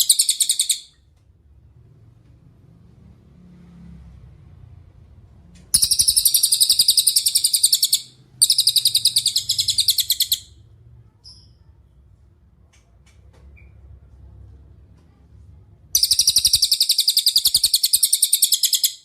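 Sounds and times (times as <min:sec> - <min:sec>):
songbird chirping trills: 0:00.0 - 0:01.0, 0:05.7 - 0:11.8, 0:16.0 - 0:19.0
faint low rumble: 0:01.1 - 0:06.2, 0:08.1 - 0:16.1.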